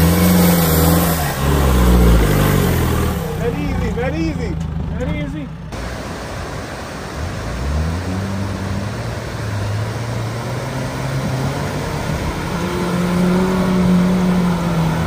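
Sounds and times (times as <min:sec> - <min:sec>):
car engine revving: 0:00.0 - 0:15.0
river water rushing: 0:05.7 - 0:15.0.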